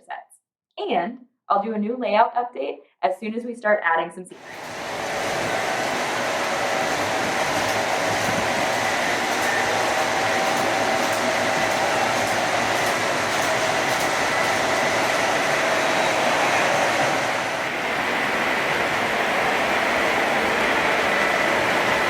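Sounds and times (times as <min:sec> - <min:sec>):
model train motors whirring: 0:04.4 - 0:22.0.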